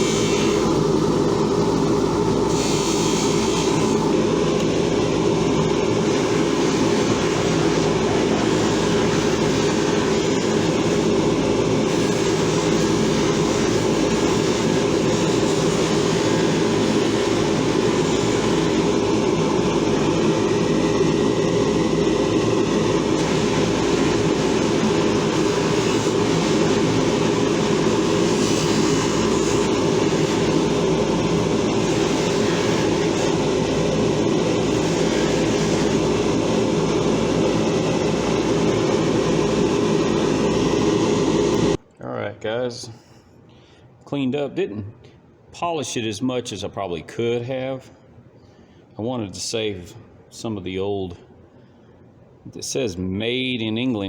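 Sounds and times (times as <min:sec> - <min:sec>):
electric buffing wheel humming: 0:00.0 - 0:41.8.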